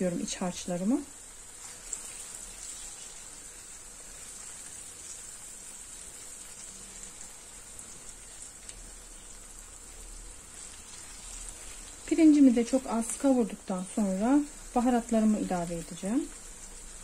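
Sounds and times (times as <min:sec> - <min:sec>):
rice sizzling in a pan: 0:00.0 - 0:17.0.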